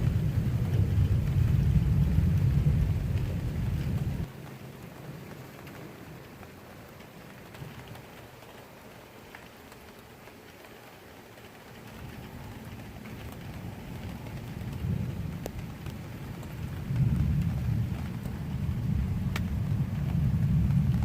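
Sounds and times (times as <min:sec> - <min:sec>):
thunder rumbling: 0:00.0 - 0:06.4, 0:11.8 - 0:21.0
steady rain falling: 0:00.0 - 0:21.0.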